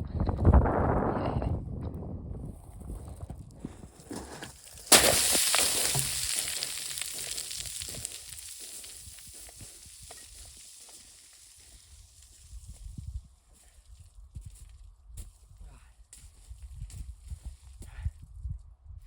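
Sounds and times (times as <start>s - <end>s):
snow crunching: 4.2s - 12.0s
snow hissing under slider: 4.6s - 12.5s.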